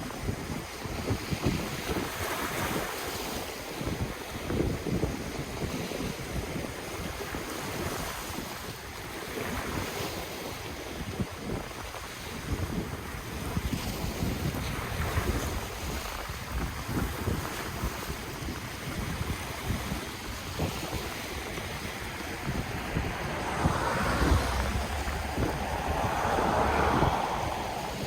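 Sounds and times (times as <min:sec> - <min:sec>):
wind buffeting microphone: 0:10.9 - 0:28.0
ocean waves washing ashore: 0:14.6 - 0:28.0.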